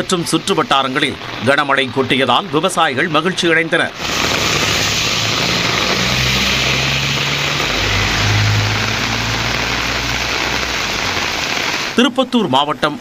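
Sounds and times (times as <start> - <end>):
heavy rain on a road: 0.0 - 12.4
vehicle engine running: 4.0 - 11.5.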